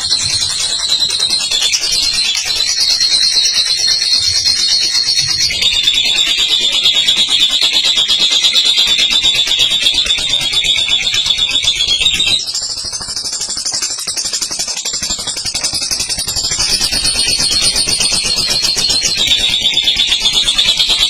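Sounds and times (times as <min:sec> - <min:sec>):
bird chattering rapidly: 0:00.0 - 0:12.5.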